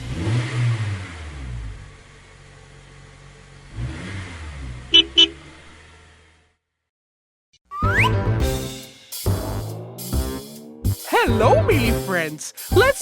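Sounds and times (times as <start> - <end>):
cartoon bus engine revving: 0.0 - 2.1, 3.6 - 6.8
horn toots: 4.9 - 5.5.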